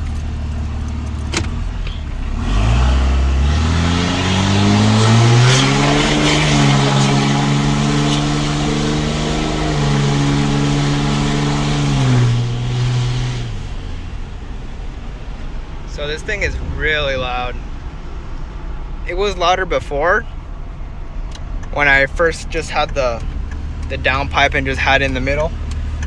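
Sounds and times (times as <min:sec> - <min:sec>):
loud diesel engine revving: 0:00.0 - 0:17.9.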